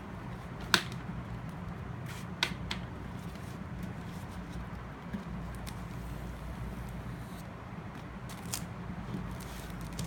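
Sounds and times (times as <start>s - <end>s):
hands handling paper and packaging: 8.3s - 10.0s.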